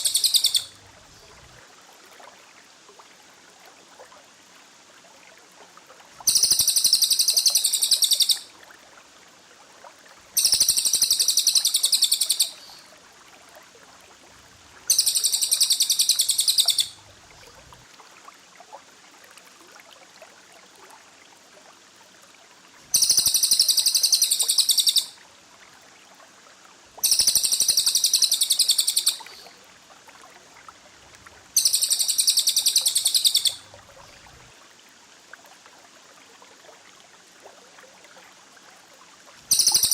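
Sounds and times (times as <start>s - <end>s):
songbird trilling: 0.0s - 0.8s, 6.3s - 8.5s, 10.4s - 12.8s, 14.9s - 17.0s, 22.9s - 25.2s, 27.0s - 29.5s, 31.6s - 33.7s, 39.5s - 39.9s
faint steady hiss: 0.0s - 39.9s.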